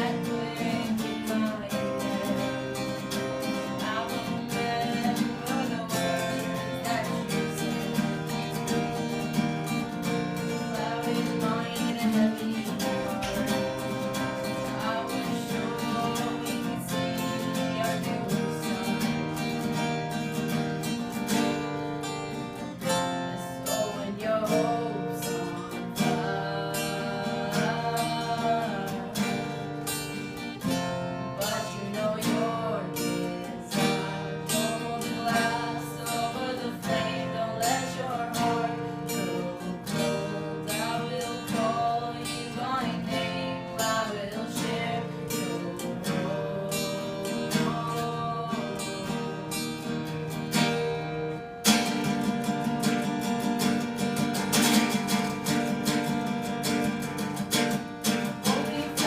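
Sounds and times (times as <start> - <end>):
acoustic guitar strumming: 0.0 - 59.0
person singing: 0.0 - 59.0.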